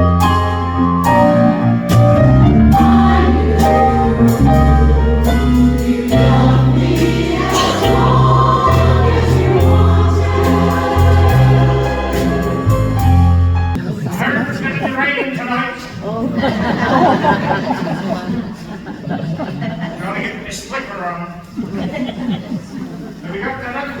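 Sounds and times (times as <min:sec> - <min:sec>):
backing band with bass and beat: 0:00.0 - 0:13.8
women's chorus singing: 0:01.1 - 0:13.2.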